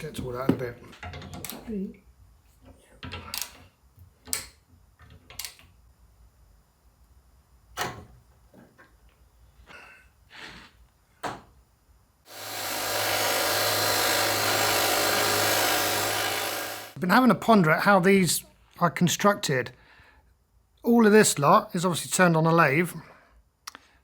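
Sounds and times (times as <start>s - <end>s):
power tool running: 12.3s - 17.0s.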